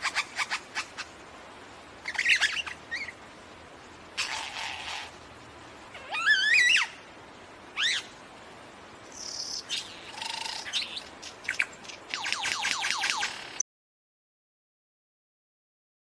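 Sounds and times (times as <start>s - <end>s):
bird whistling calls: 2.0s - 3.2s, 6.0s - 7.0s, 7.8s - 8.1s, 9.1s - 13.4s.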